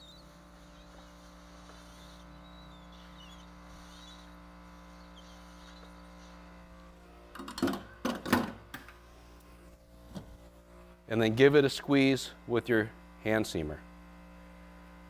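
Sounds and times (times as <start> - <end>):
welding unit humming: 0.0 - 15.0
tools knocking and clattering: 7.4 - 8.6.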